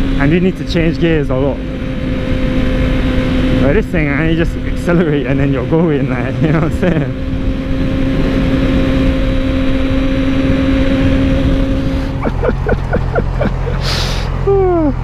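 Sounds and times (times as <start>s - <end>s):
motorcycle engine running: 0.0s - 15.0s
wind rush: 5.6s - 14.4s.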